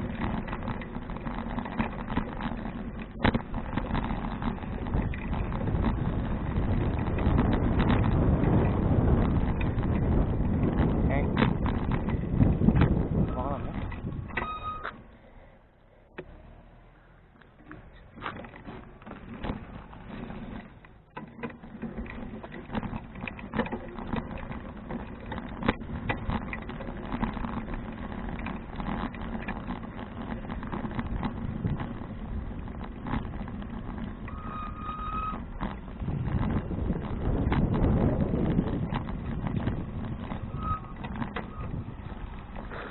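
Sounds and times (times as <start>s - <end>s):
bicycle rattles and knocks: 0.0s - 15.2s, 16.1s - 42.9s
bicycle tyres rumbling: 0.0s - 42.9s
high squeal: 14.4s - 14.9s, 34.3s - 35.5s, 40.4s - 41.8s.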